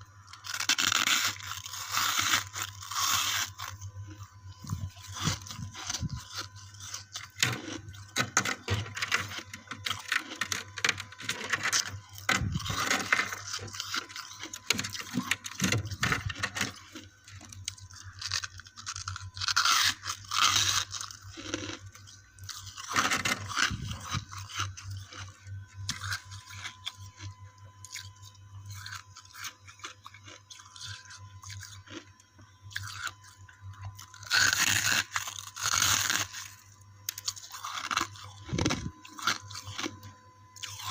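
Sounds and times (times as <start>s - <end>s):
ice being bitten and chewed: 0.0s - 40.9s.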